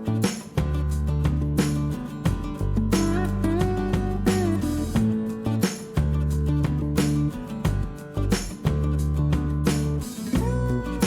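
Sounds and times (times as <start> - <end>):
guitar music with steady beat: 0.0 - 11.0.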